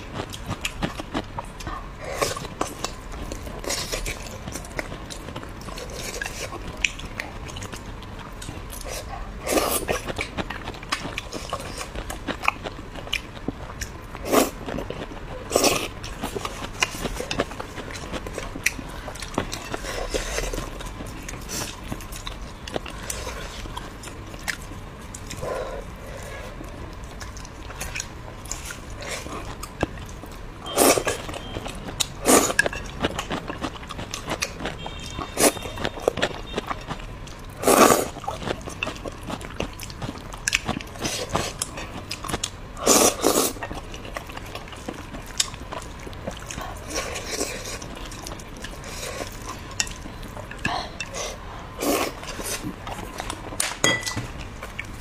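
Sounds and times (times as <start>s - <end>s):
woman chewing food: 0.0s - 55.0s.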